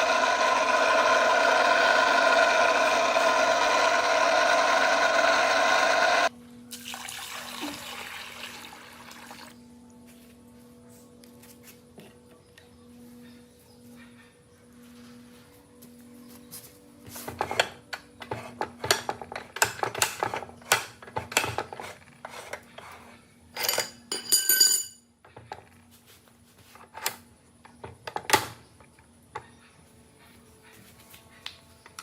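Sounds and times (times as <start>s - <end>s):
metal tools clinking: 23.6s - 25.0s.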